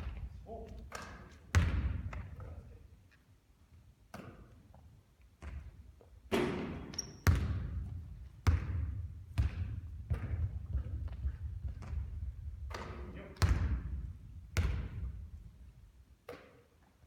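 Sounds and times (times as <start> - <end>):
basketball bouncing on hard court: 0.0 - 2.5, 5.4 - 15.5.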